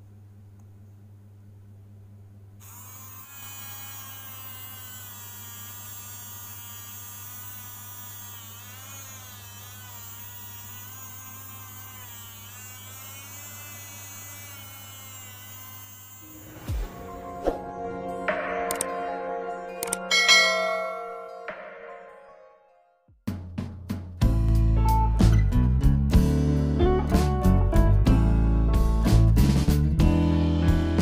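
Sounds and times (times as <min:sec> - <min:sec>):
small motor buzzing whine: 0:02.6 - 0:17.2.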